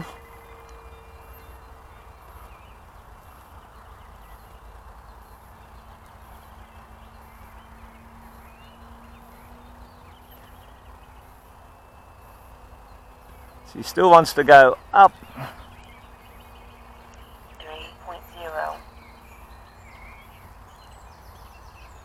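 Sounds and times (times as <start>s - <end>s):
model plane electric motor drone: 4.0s - 14.8s.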